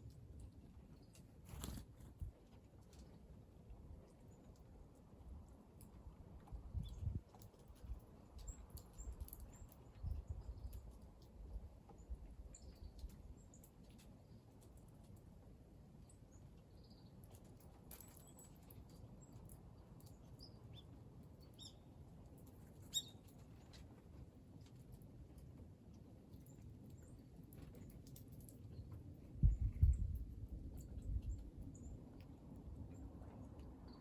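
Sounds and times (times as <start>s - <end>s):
small birds chirping: 6.7s - 14.9s, 16.0s - 23.7s, 26.3s - 34.0s.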